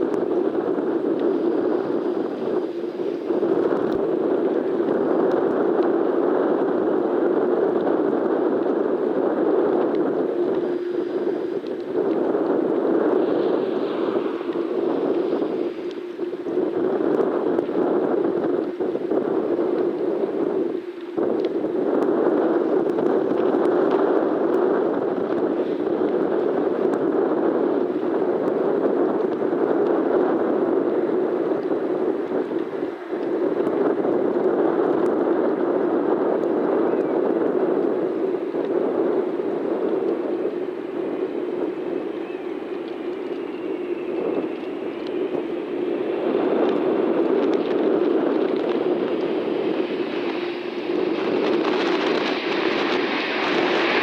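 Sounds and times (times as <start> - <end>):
engine whine: 0.0 - 26.1, 37.8 - 54.0
jet airliner engines: 0.0 - 54.0
wind on microphone: 0.0 - 54.0
bright hiss: 49.2 - 54.0.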